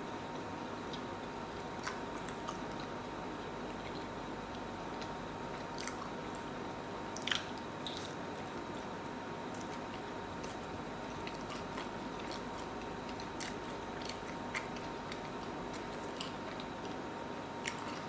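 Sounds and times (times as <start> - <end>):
person chewing: 7.2 - 8.2, 9.5 - 17.0, 17.6 - 18.0.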